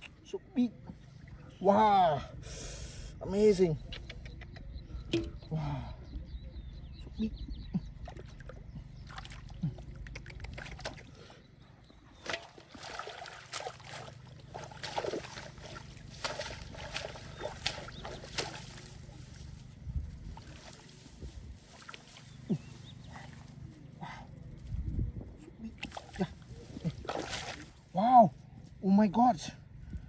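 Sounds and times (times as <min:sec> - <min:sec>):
muddy water splashing: 0:07.8 - 0:11.4, 0:12.1 - 0:23.9, 0:25.6 - 0:28.1.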